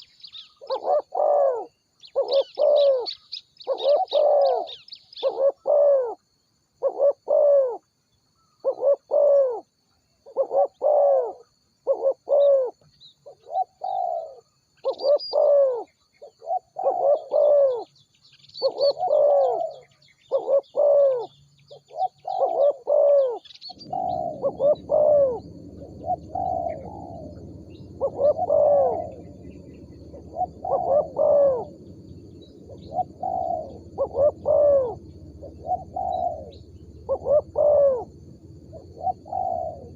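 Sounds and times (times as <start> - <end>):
dove cooing: 0.0 - 6.2, 6.8 - 7.8, 8.6 - 9.6, 10.2 - 17.9, 18.6 - 39.9
small birds chirping: 0.0 - 6.2, 10.2 - 39.9
steady low noise: 23.6 - 39.9.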